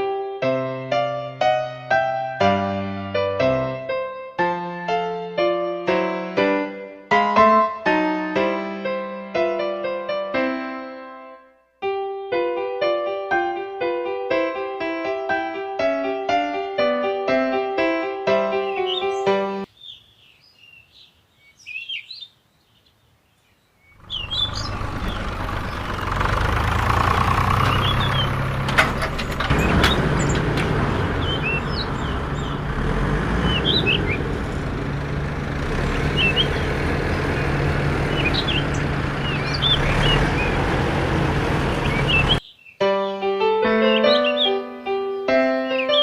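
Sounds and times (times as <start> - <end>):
birds chirping: 18.4 - 46.0.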